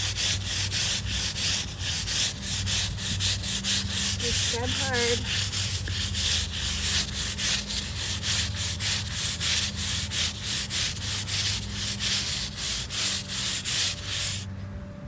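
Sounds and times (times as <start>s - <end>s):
scrub brush scrubbing pavers: 0.0s - 14.5s.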